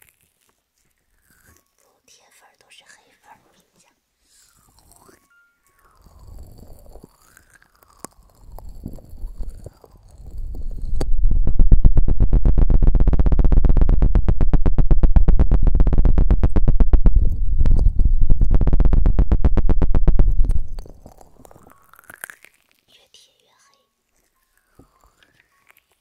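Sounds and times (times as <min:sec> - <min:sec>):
fast scratching on microphone: 0:08.1 - 0:21.7.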